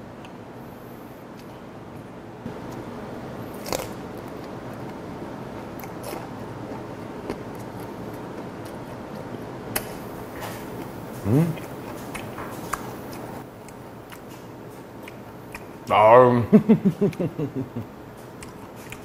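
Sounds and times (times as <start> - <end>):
chewing crunchy fish bones: 3.5 - 15.9, 18.0 - 19.0.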